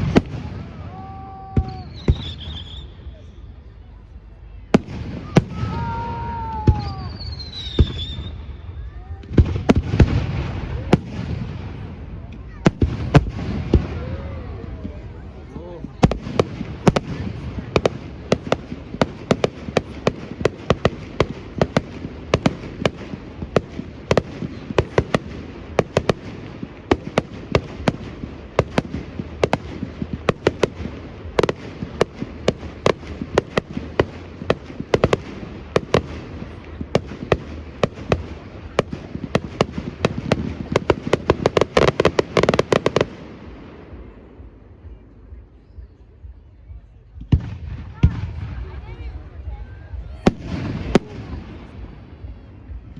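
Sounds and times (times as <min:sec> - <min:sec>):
fireworks bangs: 0:00.0 - 0:03.2, 0:04.6 - 0:44.5, 0:47.2 - 0:52.8.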